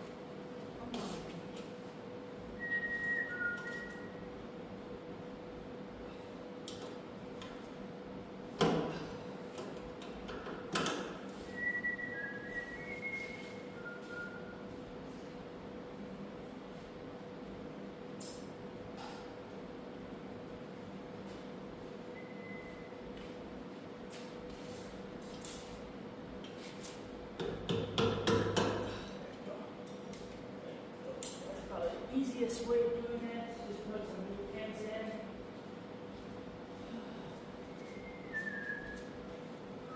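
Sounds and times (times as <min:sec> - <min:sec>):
faint high whistle-like tones: 0:02.5 - 0:04.3, 0:11.4 - 0:14.7, 0:22.1 - 0:23.0, 0:37.7 - 0:39.9.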